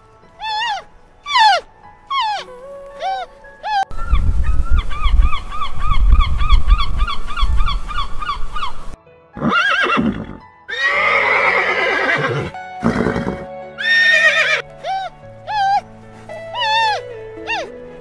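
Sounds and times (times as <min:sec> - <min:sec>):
horses neighing: 0:09.4 - 0:15.8
flamingos honking: 0:12.8 - 0:18.0.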